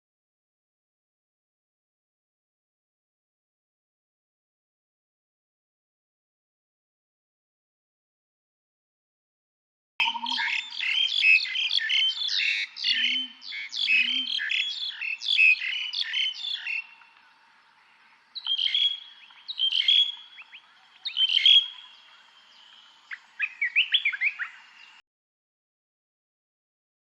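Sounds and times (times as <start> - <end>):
low bird calls: 10.0 - 25.0
songbirds chirping and singing: 10.0 - 25.0.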